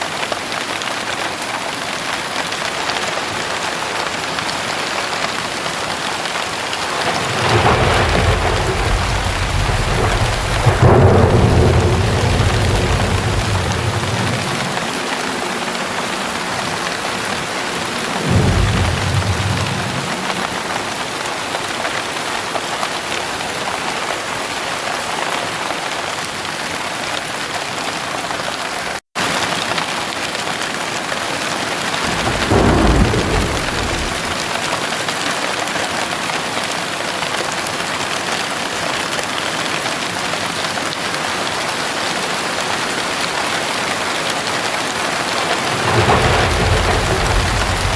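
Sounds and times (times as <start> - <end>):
heavy rain: 0.0 - 47.9
thunder rolling: 6.3 - 21.4, 31.9 - 34.9, 45.0 - 47.9.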